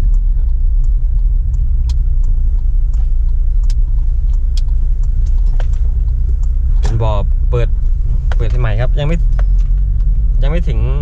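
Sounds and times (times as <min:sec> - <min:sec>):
motorcycle engine and road noise: 0:00.0 - 0:11.0.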